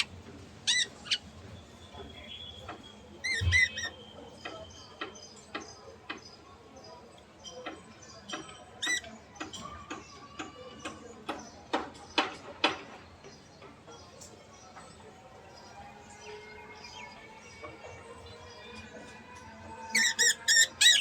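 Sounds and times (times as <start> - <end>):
budgerigars chirping: 0.0 - 1.3, 3.2 - 4.0, 20.0 - 21.0.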